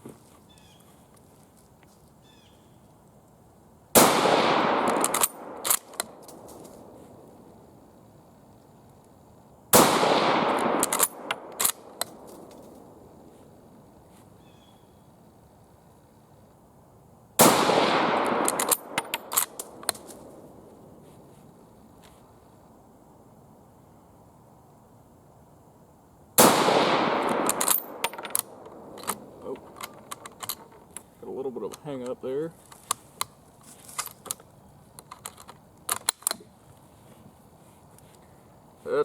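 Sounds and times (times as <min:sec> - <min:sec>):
rifle shots with echo: 0:04.0 - 0:07.4, 0:09.7 - 0:13.3, 0:17.4 - 0:21.0, 0:26.4 - 0:30.2
rifle bolt clicks: 0:04.7 - 0:06.9, 0:10.4 - 0:12.8, 0:18.0 - 0:20.4, 0:27.1 - 0:31.1, 0:34.0 - 0:36.4.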